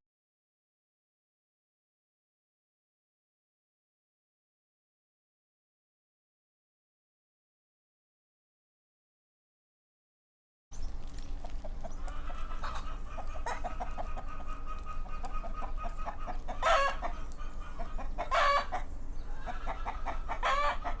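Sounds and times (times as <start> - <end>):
chickens clucking: 10.8 - 21.0.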